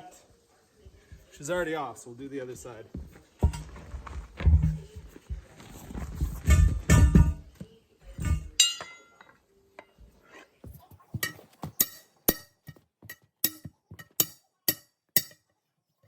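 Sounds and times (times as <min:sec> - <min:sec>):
heavy thud and ringing clank: 0:06.5 - 0:07.5
metal bars clinking on wheel rim: 0:08.2 - 0:09.4.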